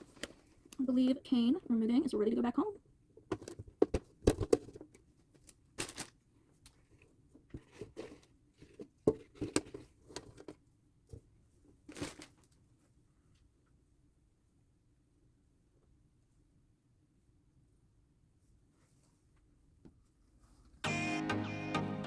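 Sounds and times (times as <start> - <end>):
paper bedding rustling and crinkling: 5.8 - 6.2, 11.8 - 12.5.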